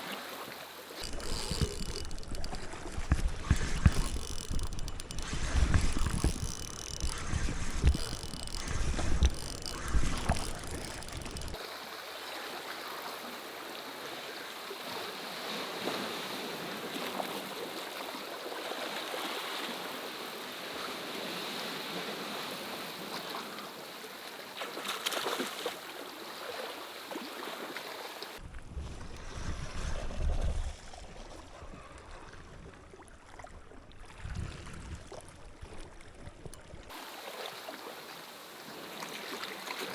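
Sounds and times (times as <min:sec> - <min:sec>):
sea wash on rocky shore: 0:10.8 - 0:29.1, 0:30.8 - 0:39.9.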